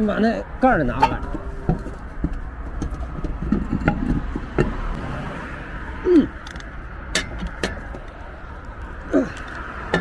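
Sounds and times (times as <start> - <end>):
road traffic noise: 0.0 - 10.0
sharp clicks and knocks: 1.0 - 5.0, 6.4 - 8.2.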